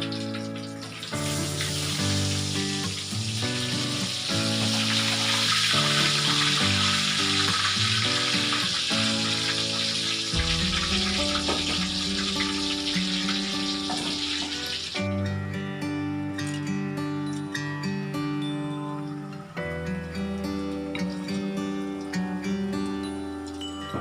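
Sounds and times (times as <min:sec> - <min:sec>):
food sizzling in hot oil: 0:00.0 - 0:15.1
background music: 0:00.0 - 0:24.0.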